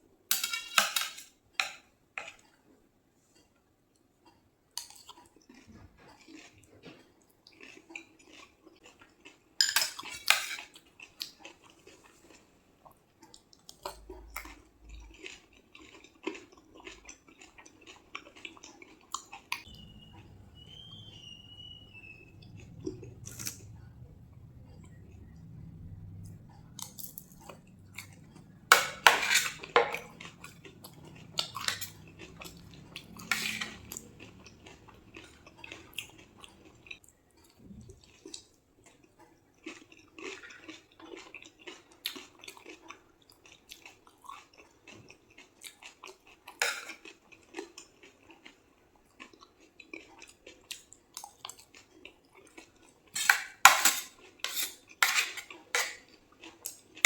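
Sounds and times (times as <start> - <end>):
plate and cutlery clicks: 0.3 - 1.8, 28.7 - 30.1
crunchy food being chewed: 4.2 - 57.0.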